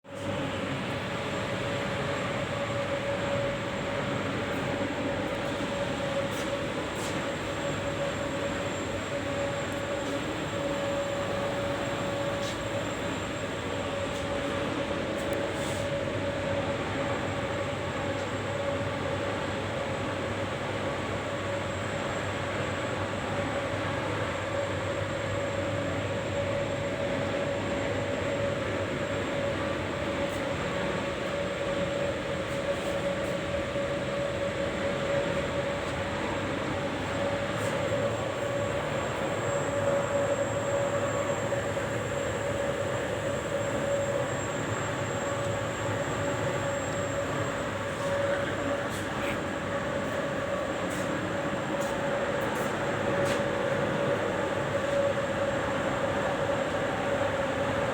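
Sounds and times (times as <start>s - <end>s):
faint high whine: 0.1s - 19.8s, 20.4s - 57.9s
mid-pitched hum: 27.0s - 57.2s.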